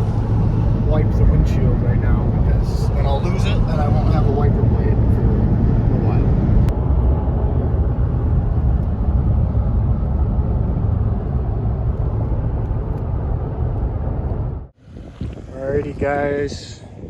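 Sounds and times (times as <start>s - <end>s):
road and engine rumble in cab: 0.0s - 17.0s.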